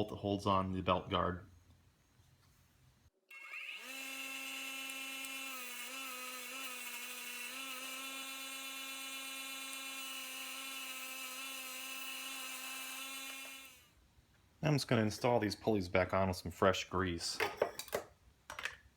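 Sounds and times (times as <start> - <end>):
electric power tool whining: 3.3 - 13.9.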